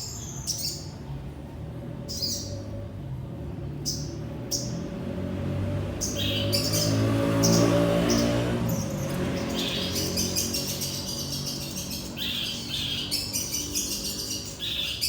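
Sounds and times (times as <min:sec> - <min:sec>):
songbird chirping: 0:05.8 - 0:15.0.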